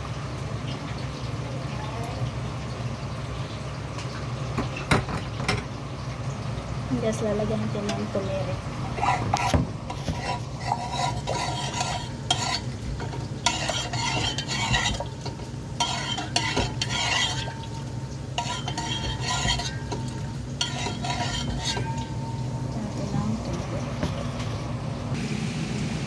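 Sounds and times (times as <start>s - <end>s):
food sizzling in a pan: 5.6s - 26.0s
spoon scraping a pan: 8.8s - 24.5s.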